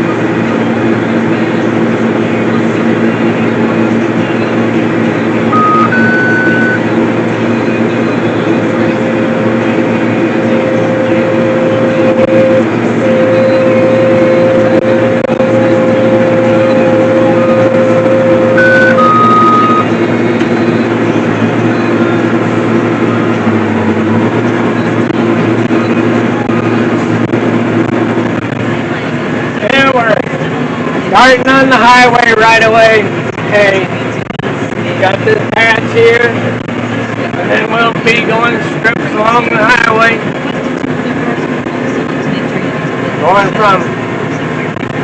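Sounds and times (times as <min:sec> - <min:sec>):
farm vehicle engine running: 0:00.0 - 0:45.0
steady whine: 0:00.0 - 0:45.0
two-note electronic beep: 0:05.4 - 0:26.7.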